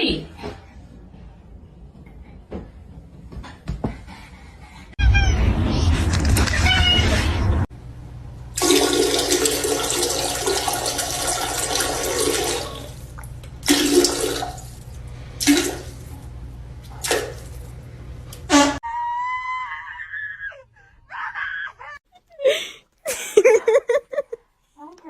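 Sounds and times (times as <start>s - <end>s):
water gushes: 8.6s - 14.7s.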